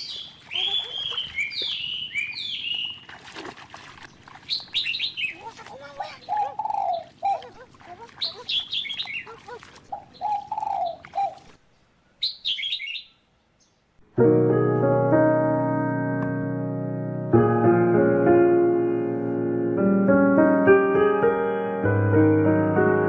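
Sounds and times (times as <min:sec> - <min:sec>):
bird calling: 0:00.0 - 0:03.2, 0:03.9 - 0:11.6, 0:12.2 - 0:13.2
piano music: 0:14.0 - 0:23.0.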